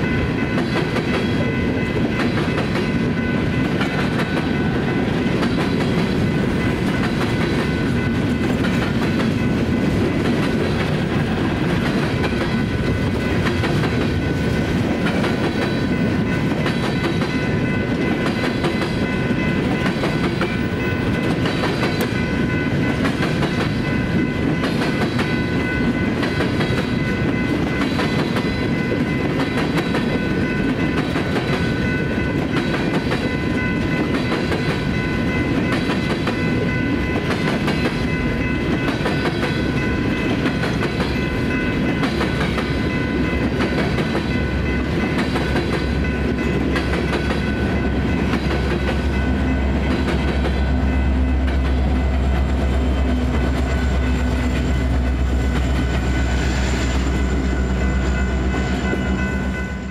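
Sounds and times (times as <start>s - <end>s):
crossing warning bell ringing: 0.0s - 59.9s
train wheels clattering over rail joints: 0.6s - 25.4s.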